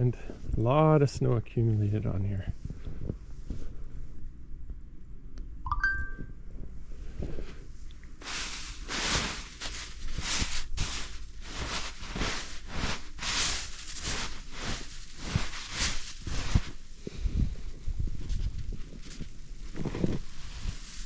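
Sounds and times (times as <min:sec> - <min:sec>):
crunching in deep snow: 0:08.2 - 0:21.0.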